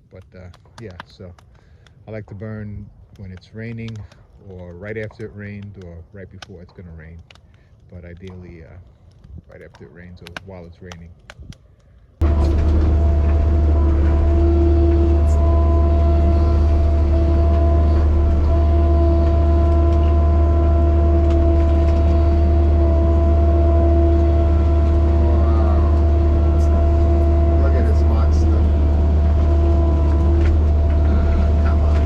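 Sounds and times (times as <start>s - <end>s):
heavy machine engine humming: 12.2s - 32.0s
short rising whine: 12.2s - 32.0s.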